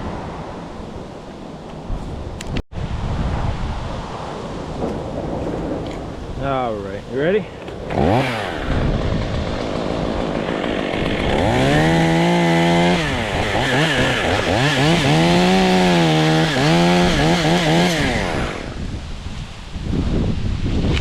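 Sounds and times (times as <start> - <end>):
chainsaw running: 7.6 - 18.8.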